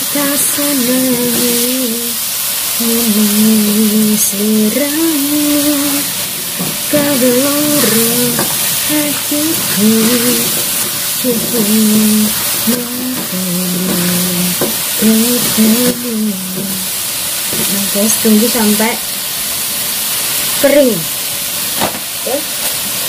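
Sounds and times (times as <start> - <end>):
meat and potatoes sizzling: 0.0 - 23.0
spatula stirring in wok: 4.7 - 18.6.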